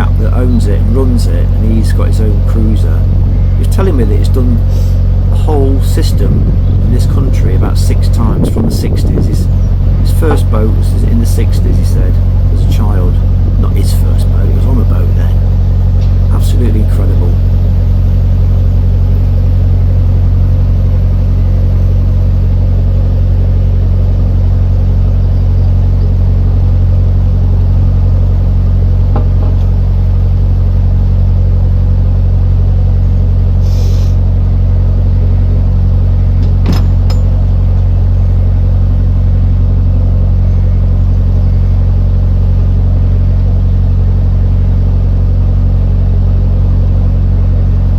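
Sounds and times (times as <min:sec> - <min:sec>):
diesel engine droning: 0:00.0 - 0:47.9
short hiss: 0:33.6 - 0:34.2.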